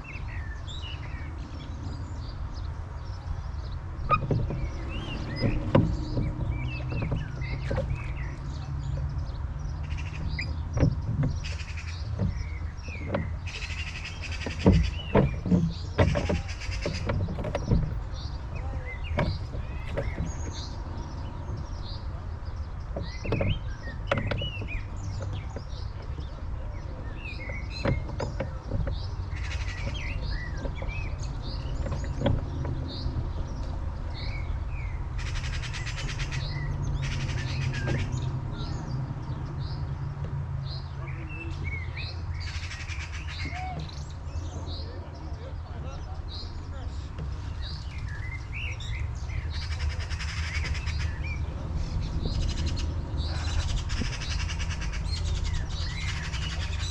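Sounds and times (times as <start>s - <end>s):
birds singing: 0.0s - 56.9s
wind rumble on microphone: 0.0s - 56.9s
sharp knocks: 3.9s - 34.4s.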